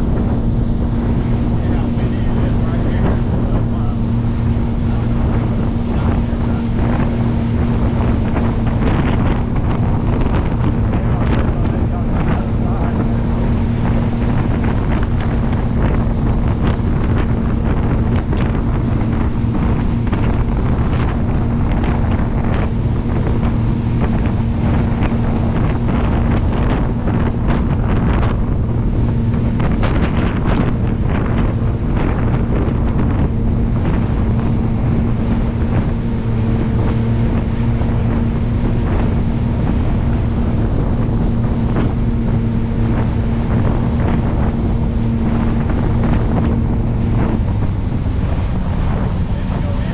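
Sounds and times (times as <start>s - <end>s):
boat engine drone: 0.0s - 49.9s
wind buffeting microphone: 0.0s - 49.9s.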